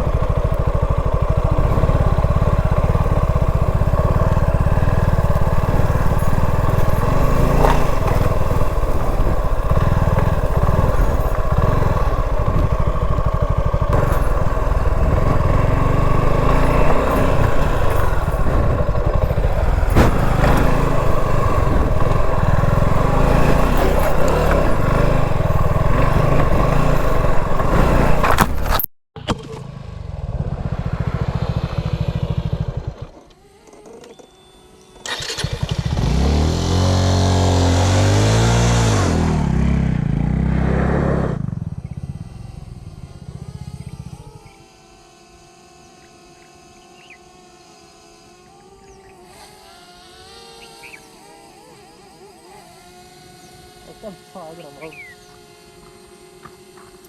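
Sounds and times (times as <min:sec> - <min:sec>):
heavy low rumble: 0:00.0 - 0:28.6
motorcycle engine on dirt track: 0:00.0 - 0:57.0.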